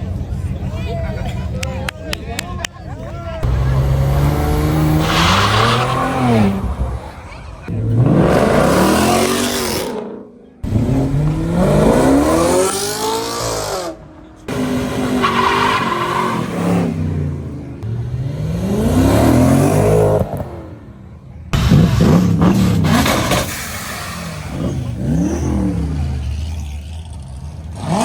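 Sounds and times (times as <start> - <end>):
car engines revving and accelerating: 0.0 - 28.0
tyre squeal: 4.9 - 6.7.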